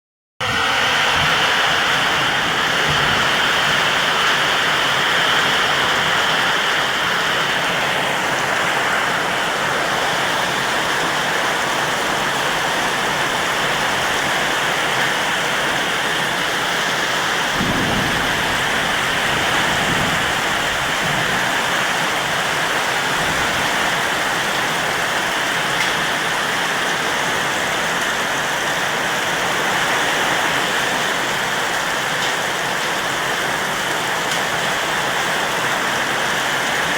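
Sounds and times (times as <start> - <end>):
thunder rumble: 0.4 - 8.6, 15.2 - 26.3
heavy rain pouring: 0.4 - 36.9.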